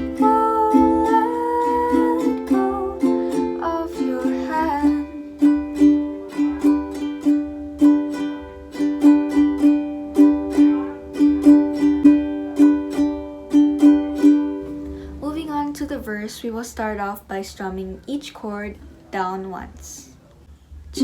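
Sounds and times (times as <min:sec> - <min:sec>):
ukulele strumming chords: 0:00.0 - 0:16.3.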